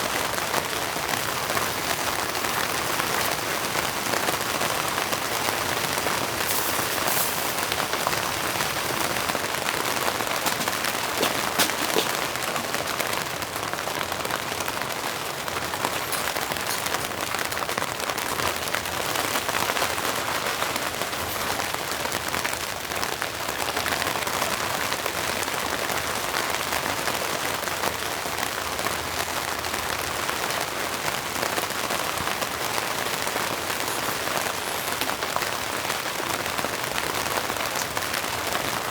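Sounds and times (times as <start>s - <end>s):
sharp raindrop hits: 0.0s - 25.1s
rain falling: 0.0s - 38.9s.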